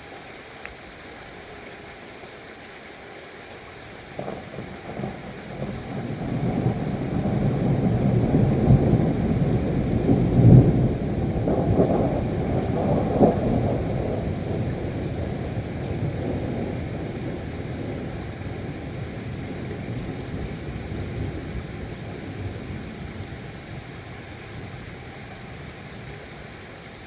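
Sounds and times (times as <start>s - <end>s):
steady rain: 0.0s - 27.0s
thunder rolling: 4.2s - 23.8s.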